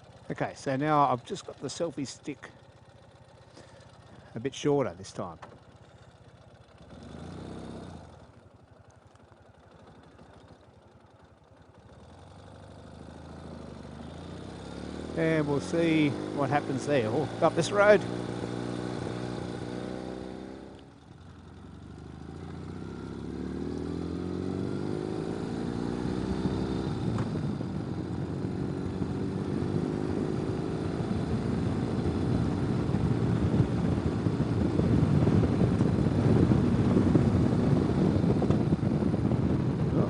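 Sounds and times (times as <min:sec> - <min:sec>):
motorcycle engine accelerating: 0:00.0 - 0:40.0
wind rush: 0:32.4 - 0:40.0.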